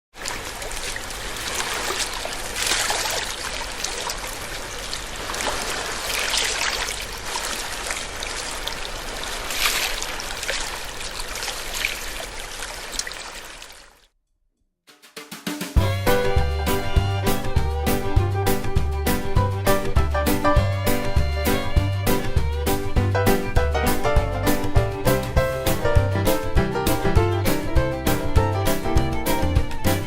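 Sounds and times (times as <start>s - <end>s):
sea water splashing against rocks: 0.1s - 14.0s.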